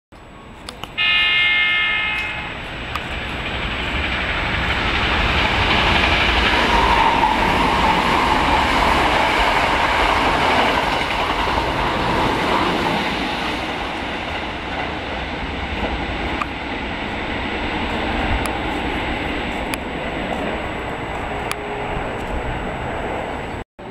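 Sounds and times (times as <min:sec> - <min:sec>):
train wheels rumbling on rails: 0:00.5 - 0:23.9
train horn blast: 0:01.0 - 0:02.7.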